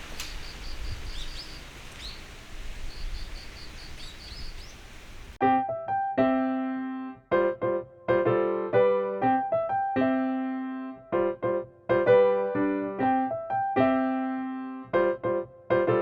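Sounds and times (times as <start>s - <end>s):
steady outdoor hiss: 0.0s - 5.4s
solo piano music: 5.4s - 16.0s.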